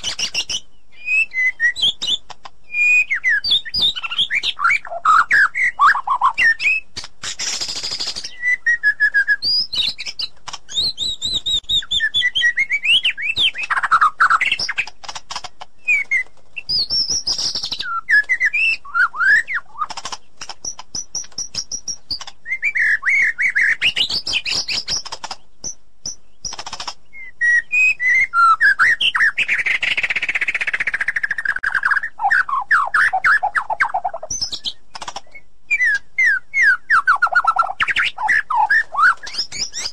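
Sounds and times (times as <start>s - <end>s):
bird singing whistled phrases: 0.0s - 14.8s, 15.8s - 20.0s, 20.6s - 39.9s.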